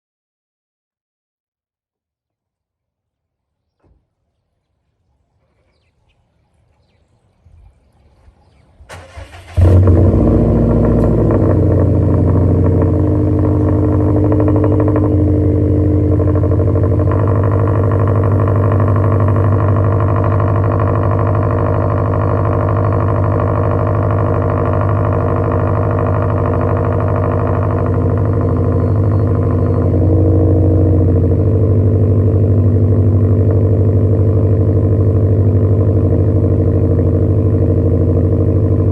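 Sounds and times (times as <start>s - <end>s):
car engine starting and idling: 8.2s - 38.9s
car engine cranking: 8.8s - 38.9s.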